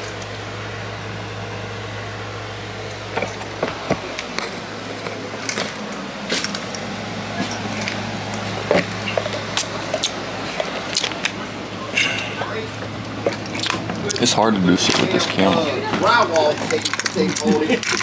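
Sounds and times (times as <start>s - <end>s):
steady low fan hum: 0.0s - 18.0s.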